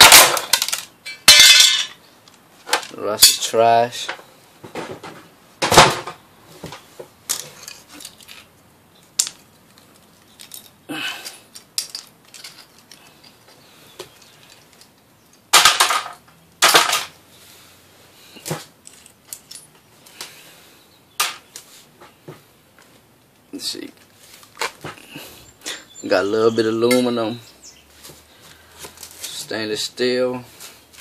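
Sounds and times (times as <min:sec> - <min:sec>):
small metal and plastic parts clinking: 0:00.0 - 0:03.5, 0:07.3 - 0:17.1, 0:18.4 - 0:20.2
scrap clattering hits: 0:15.5 - 0:17.2.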